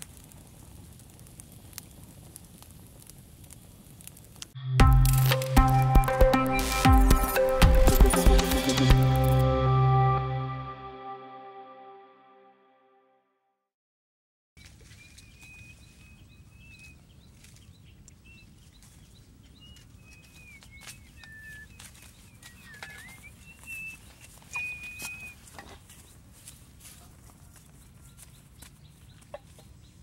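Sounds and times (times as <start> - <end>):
birds whistling: 19.6 - 25.5.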